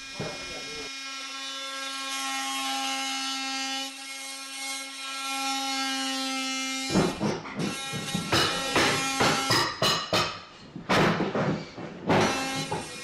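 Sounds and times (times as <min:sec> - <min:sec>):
power saw cutting wood: 0:00.0 - 0:09.7, 0:12.1 - 0:13.0
loud knocks: 0:06.9 - 0:12.9.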